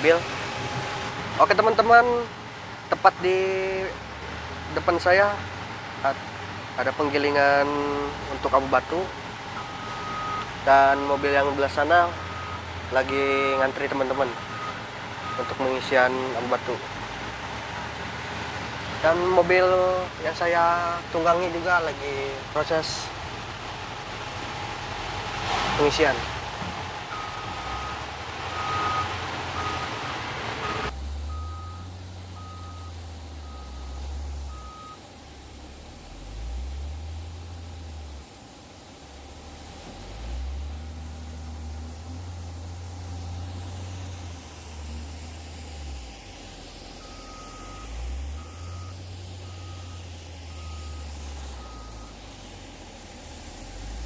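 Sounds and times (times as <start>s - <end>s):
background hiss: 0.0s - 54.0s
diesel engine rumble: 0.0s - 54.0s
reversing alarm beeping: 9.6s - 10.5s, 12.1s - 12.6s, 14.3s - 15.6s, 27.1s - 30.0s, 30.6s - 35.0s, 46.9s - 52.2s.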